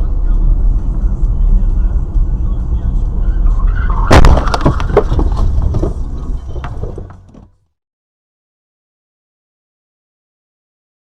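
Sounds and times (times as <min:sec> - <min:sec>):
low road rumble: 0:00.0 - 0:07.7
vehicle crash bang: 0:03.6 - 0:07.5
cracks and crunches of debris: 0:04.1 - 0:07.4.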